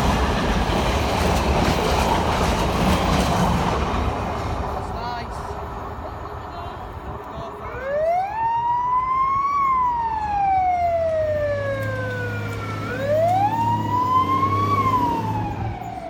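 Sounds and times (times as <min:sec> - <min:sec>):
fire engine siren wailing: 0:07.5 - 0:16.0.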